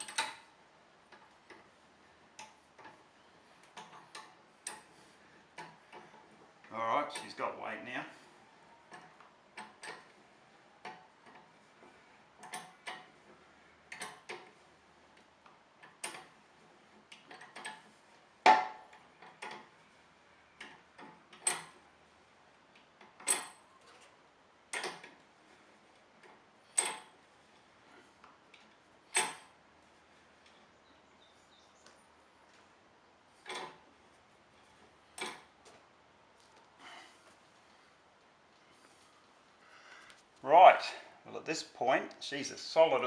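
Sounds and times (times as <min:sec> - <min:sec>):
metal lift clicking and clanking: 0:00.0 - 0:00.5, 0:03.6 - 0:05.0, 0:05.6 - 0:07.4, 0:08.9 - 0:14.6, 0:15.2 - 0:19.8, 0:20.6 - 0:21.8, 0:23.0 - 0:24.0, 0:24.7 - 0:25.2, 0:26.2 - 0:27.2, 0:28.6 - 0:29.6, 0:33.4 - 0:33.8, 0:34.7 - 0:35.5.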